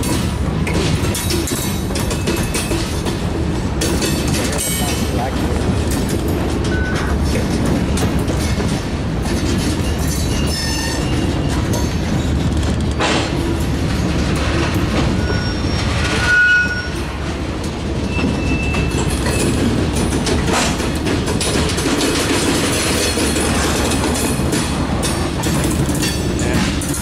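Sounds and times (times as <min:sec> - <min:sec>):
steel wheels rumbling on rail: 0:00.0 - 0:27.0
wheels clacking over rail joint: 0:00.0 - 0:27.0
high wheel squeals: 0:10.0 - 0:11.6, 0:15.2 - 0:17.2, 0:18.0 - 0:19.6.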